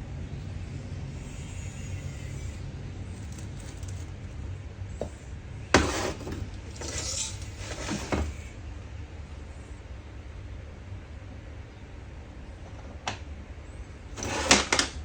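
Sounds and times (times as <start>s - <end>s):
low steady hum: 0.0s - 14.8s
rubbing and clatter: 5.8s - 8.5s.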